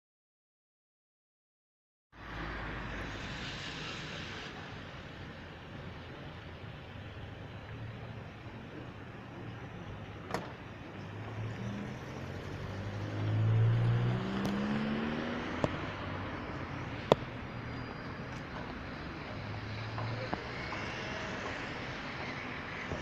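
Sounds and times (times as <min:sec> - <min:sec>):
road noise: 0:02.2 - 0:23.0
vehicle engine revving: 0:11.1 - 0:17.3.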